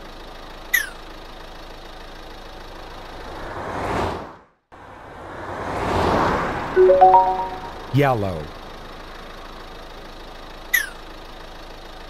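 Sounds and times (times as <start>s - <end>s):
cartoon toy car engine: 0.7s - 1.0s, 10.6s - 11.2s.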